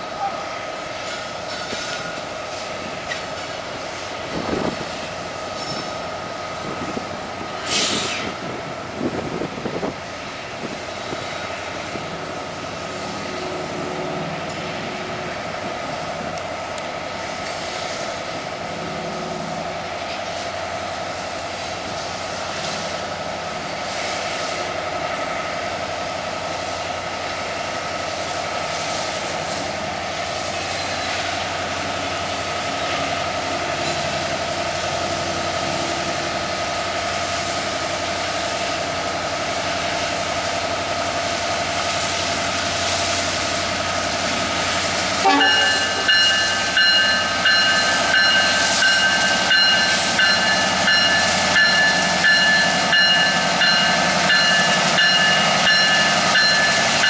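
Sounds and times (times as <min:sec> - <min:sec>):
diesel locomotive engine running: 0:00.0 - 0:57.0
steady high tone: 0:45.2 - 0:57.0.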